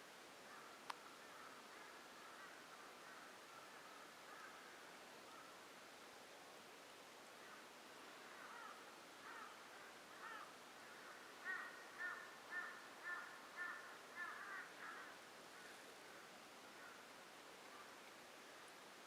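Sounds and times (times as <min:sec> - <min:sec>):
bird calling: 0:10.2 - 0:15.8.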